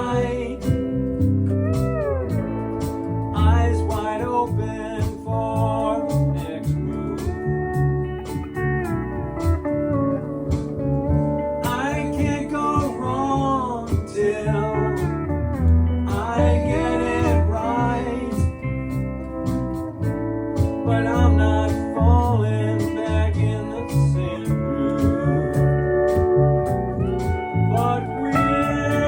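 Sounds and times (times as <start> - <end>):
drum beats: 0.0 - 14.3, 14.9 - 17.6, 18.3 - 23.0, 23.9 - 29.0
lead guitar with sliding notes: 0.0 - 29.0
steady bass: 0.0 - 29.0.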